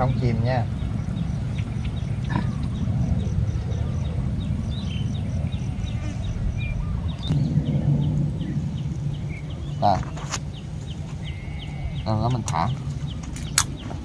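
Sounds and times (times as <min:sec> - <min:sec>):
small birds chirping: 0:00.0 - 0:14.0
steady low rumble: 0:00.0 - 0:14.0.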